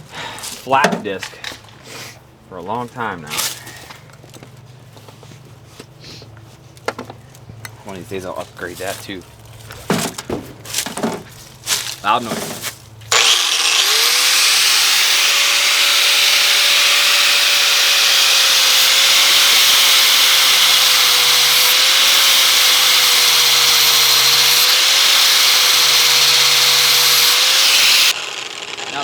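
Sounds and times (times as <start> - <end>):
angle grinder grinding metal: 13.1 - 29.0.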